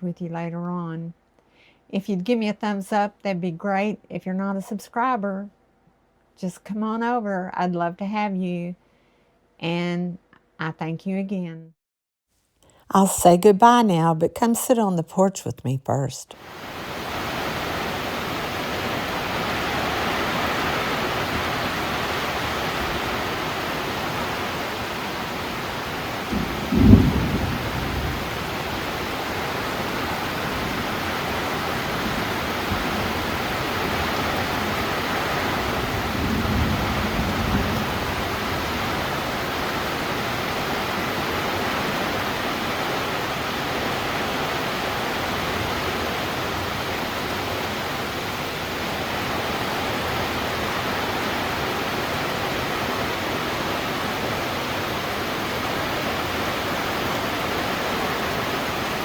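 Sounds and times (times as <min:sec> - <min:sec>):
steady rain falling: 0:16.4 - 0:59.0.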